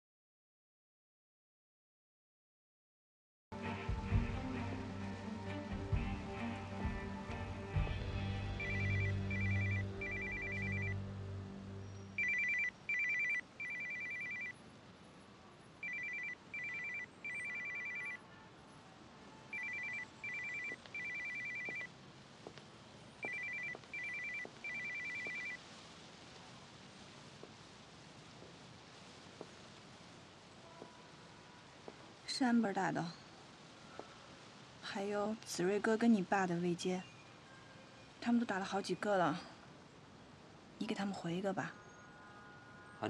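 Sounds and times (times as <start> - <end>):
background music: 3.5 - 12.6
phone ringtone: 8.6 - 11.0, 12.2 - 14.6, 15.8 - 18.2, 19.5 - 21.9, 23.2 - 25.6.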